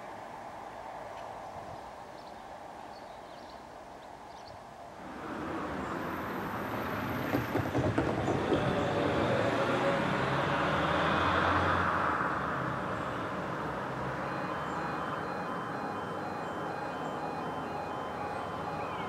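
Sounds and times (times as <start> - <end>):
diesel train engine drone: 5.0 - 7.6, 8.2 - 19.0.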